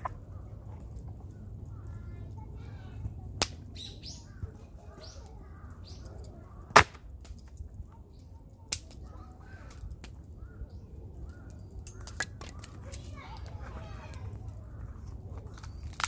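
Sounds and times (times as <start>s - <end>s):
birds chirping: 0.0s - 6.7s, 7.9s - 16.0s
wood cracking: 6.0s - 7.8s, 11.3s - 16.0s.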